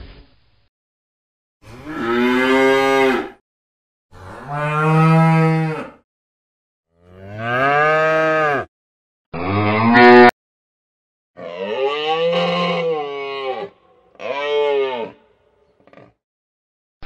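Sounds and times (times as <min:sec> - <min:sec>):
cows mooing: 0:04.2 - 0:06.0, 0:07.1 - 0:08.7, 0:09.4 - 0:10.3, 0:11.4 - 0:15.2.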